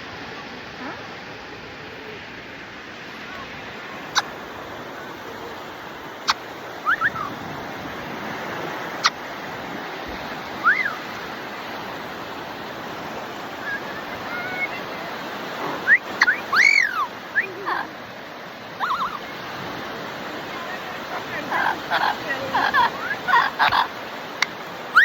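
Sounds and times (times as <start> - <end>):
sea surf: 0.0 - 25.0
parrot chirps: 6.2 - 7.4, 10.6 - 11.0, 15.8 - 17.9, 18.8 - 19.2, 21.5 - 23.9.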